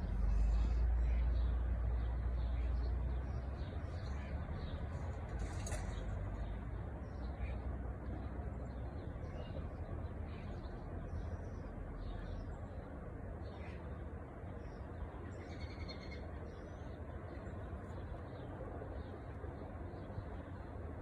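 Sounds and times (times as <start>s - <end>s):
small birds chirping: 8.6s - 20.7s.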